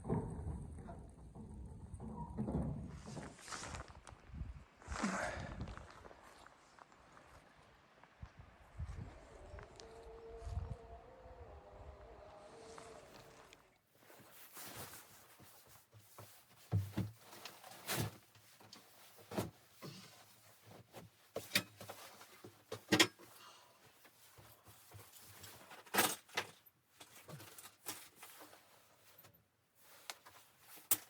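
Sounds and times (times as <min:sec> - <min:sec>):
quiet rustling: 0:12.7 - 0:31.0
knocks and clunks of handling: 0:14.6 - 0:31.0.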